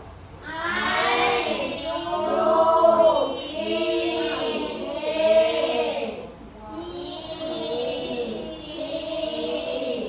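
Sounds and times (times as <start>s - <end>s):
children singing in unison: 0.4s - 10.0s.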